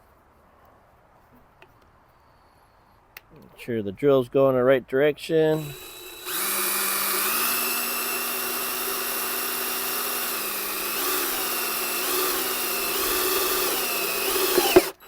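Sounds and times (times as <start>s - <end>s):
power drill boring into metal: 5.5s - 15.0s.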